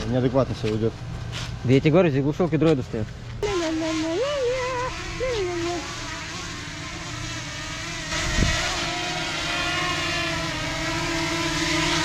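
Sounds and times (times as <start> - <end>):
engine revving: 3.4 - 12.0.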